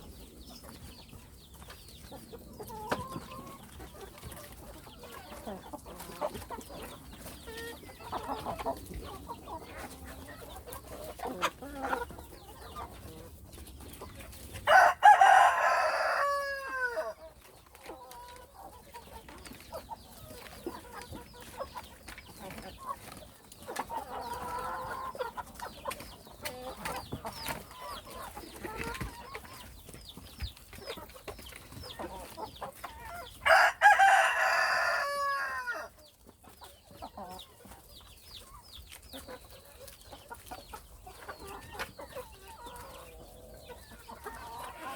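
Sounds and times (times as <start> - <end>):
chickens clucking: 0.0 - 44.9
rooster crowing: 14.7 - 17.1, 33.4 - 35.9.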